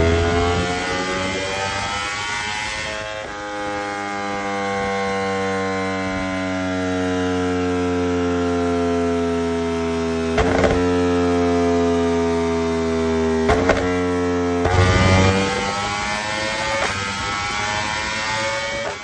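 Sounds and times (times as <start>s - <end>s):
motorcycle engine revving high: 0.0s - 3.3s, 13.3s - 19.0s
exhaust crackles: 14.6s - 19.0s.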